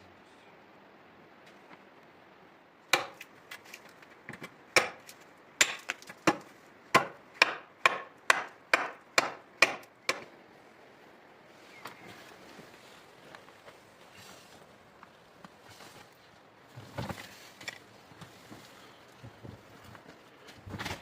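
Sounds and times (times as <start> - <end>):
tool striking wood: 2.9 - 3.3, 4.8 - 5.0, 5.6 - 10.3.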